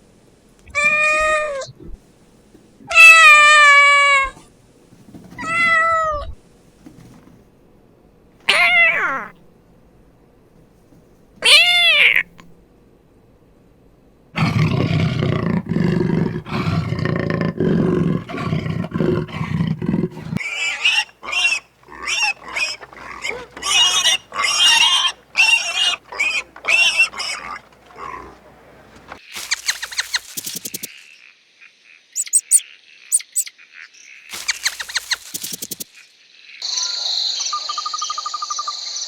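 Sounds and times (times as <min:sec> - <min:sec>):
deep loud animal calls: 0:14.4 - 0:29.2
shorter higher-pitched animal calls: 0:18.2 - 0:28.4
faint high chirps and trills: 0:32.1 - 0:33.6.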